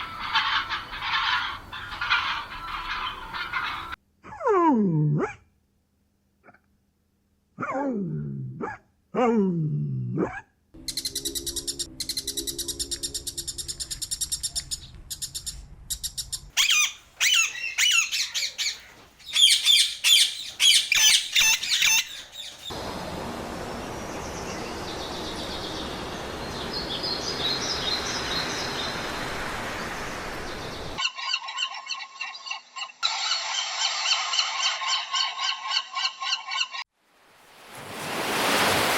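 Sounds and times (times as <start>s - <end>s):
birds chirping: 0.0s - 4.0s, 10.8s - 36.8s.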